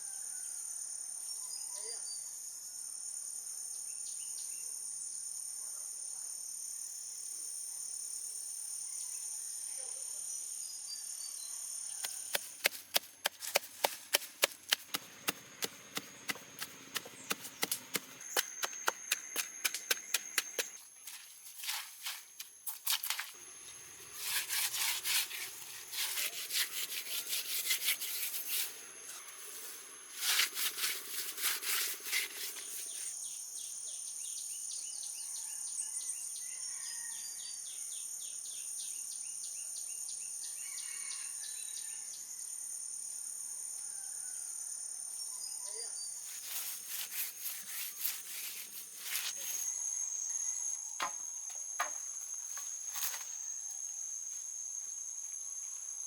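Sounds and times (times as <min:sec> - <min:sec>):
high insect chirring: 0:12.0 - 0:33.2, 0:46.3 - 0:56.0.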